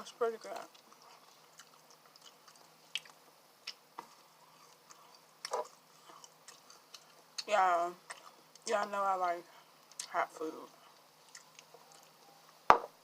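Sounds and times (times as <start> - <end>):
person chewing wetly: 0.6 - 8.7, 10.8 - 12.3.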